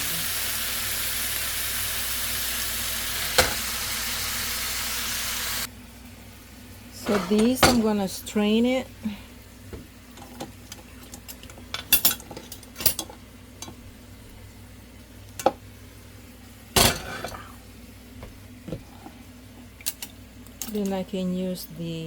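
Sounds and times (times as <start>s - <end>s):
metal utensils clinking on pan: 7.0s - 8.0s, 10.2s - 13.8s, 16.8s - 17.5s, 19.9s - 21.0s.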